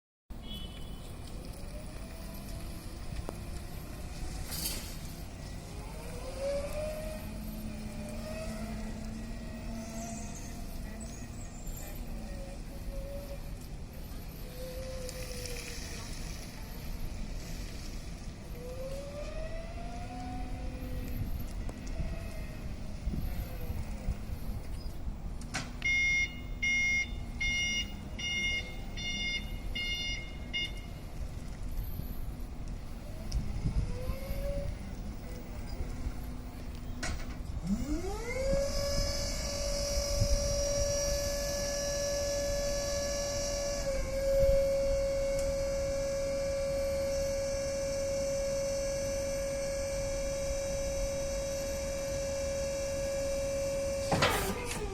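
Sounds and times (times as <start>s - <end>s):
low rumble of truck moving: 0.3s - 54.9s
electric forklift motor whining: 1.5s - 25.1s, 30.6s - 54.9s
forklift warning beeps: 25.8s - 32.5s, 33.2s - 54.9s.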